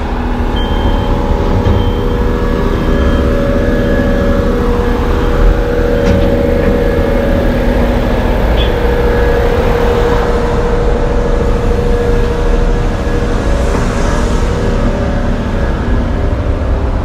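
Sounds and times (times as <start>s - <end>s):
truck diesel engine running: 0.0s - 17.0s
held tone: 0.5s - 7.7s, 11.2s - 15.9s.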